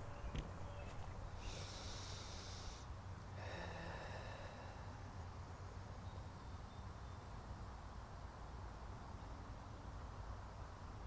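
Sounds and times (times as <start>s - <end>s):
low outdoor rumble: 0.0s - 5.4s
soft breath close to microphone: 0.7s - 5.3s.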